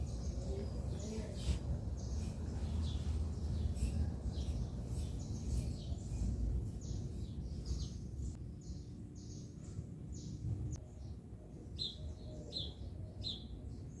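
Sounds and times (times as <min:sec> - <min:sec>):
small birds chirping: 0:00.0 - 0:14.0
low rumble: 0:10.2 - 0:10.8.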